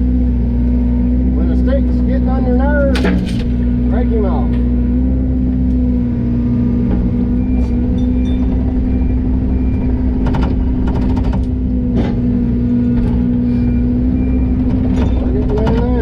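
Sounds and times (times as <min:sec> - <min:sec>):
diesel machine humming: 0:00.0 - 0:16.0
sharp metallic clanks: 0:07.6 - 0:16.0.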